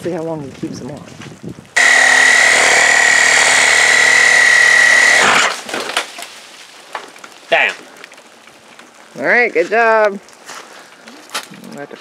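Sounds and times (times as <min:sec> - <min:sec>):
power tool whining: 0:01.8 - 0:05.7.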